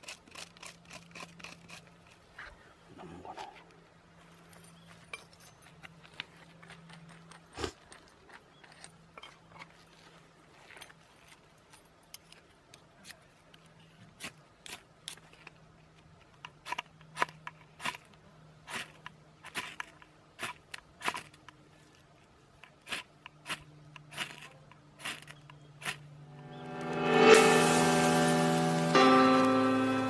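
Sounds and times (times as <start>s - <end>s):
knife shaving wood: 0.0s - 2.6s, 16.2s - 26.0s.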